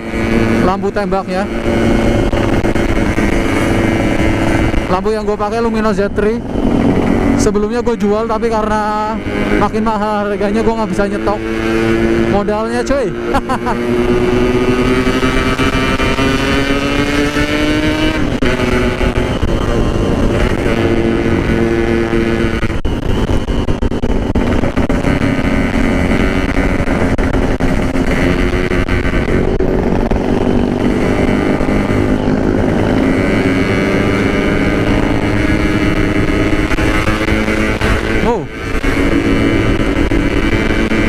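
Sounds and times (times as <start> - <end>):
motorcycle two-stroke engine revving: 0.0 - 41.0.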